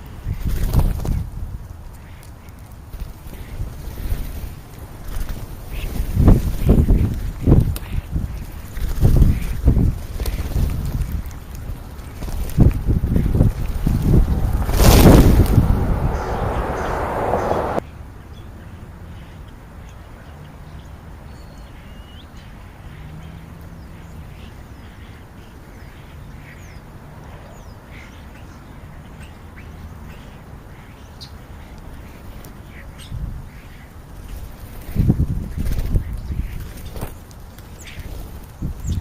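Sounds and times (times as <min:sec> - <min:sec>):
low rumble: 0:12.5 - 0:17.8.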